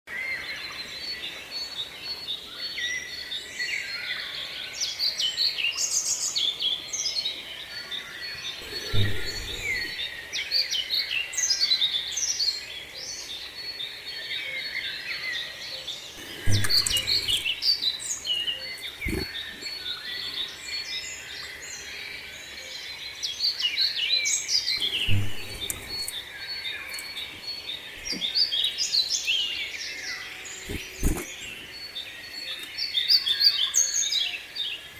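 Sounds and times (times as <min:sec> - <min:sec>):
songbirds chirping: 0:00.1 - 0:34.9.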